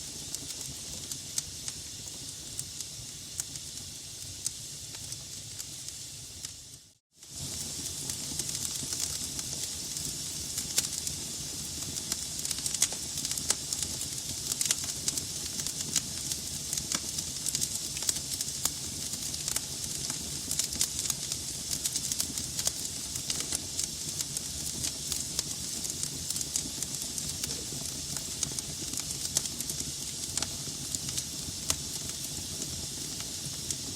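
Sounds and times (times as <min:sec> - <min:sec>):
fire hissing: 0:00.0 - 0:33.9
low rumble of flame: 0:00.0 - 0:33.9
logs crackling and popping: 0:07.7 - 0:33.9.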